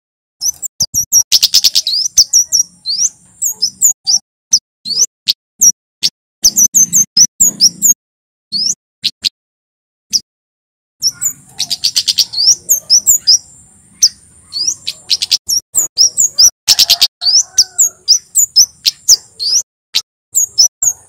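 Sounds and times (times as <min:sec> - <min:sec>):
bird chirping high notes: 0:00.4 - 0:04.2, 0:11.0 - 0:19.6.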